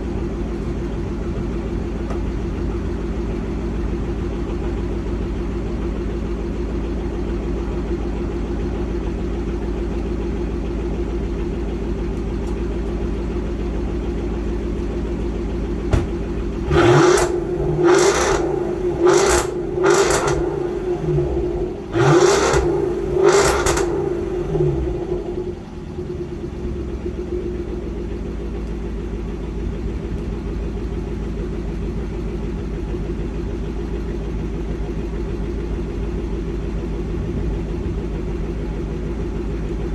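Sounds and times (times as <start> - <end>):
car engine idling: 0.0 - 39.9
engine revving: 15.8 - 25.8.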